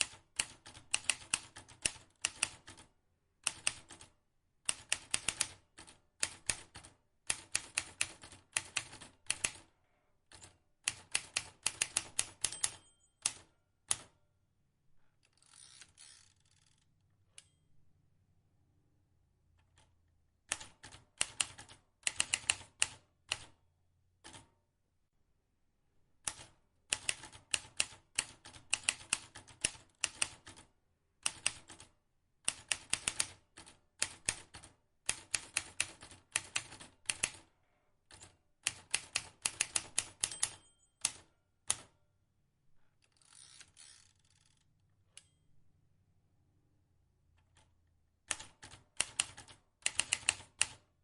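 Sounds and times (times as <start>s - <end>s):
typewriter keys clicking: 0.0s - 2.8s, 3.4s - 4.1s, 4.7s - 9.6s, 10.3s - 14.1s, 26.3s - 30.6s, 32.5s - 37.4s, 38.1s - 41.9s, 48.3s - 50.8s.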